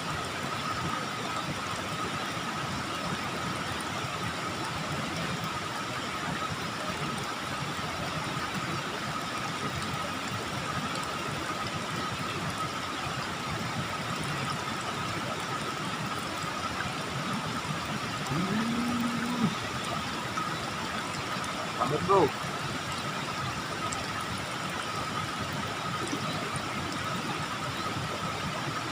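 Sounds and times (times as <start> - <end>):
water rushing in a ditch: 0.0 - 28.9.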